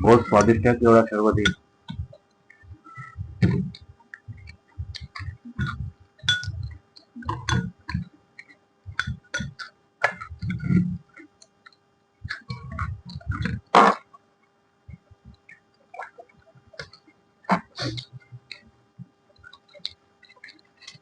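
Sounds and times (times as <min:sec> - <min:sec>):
person chewing: 0:03.8 - 0:13.6.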